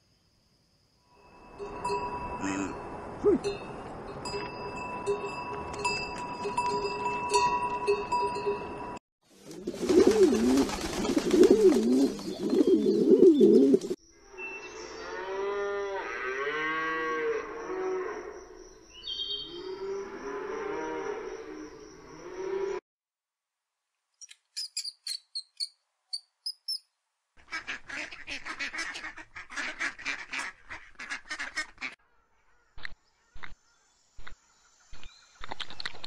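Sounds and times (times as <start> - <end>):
steady ringing tones: 1.2 - 9.0.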